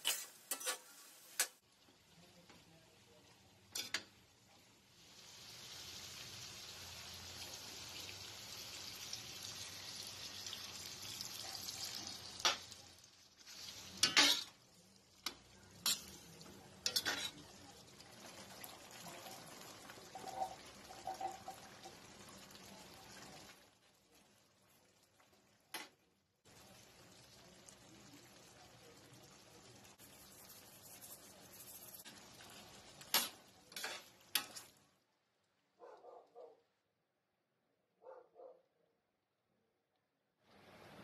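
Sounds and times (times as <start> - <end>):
metal ladle stirring: 0.0 - 1.5, 16.8 - 17.4, 30.1 - 34.7
food sizzling in a pan: 0.0 - 35.2, 40.5 - 41.0.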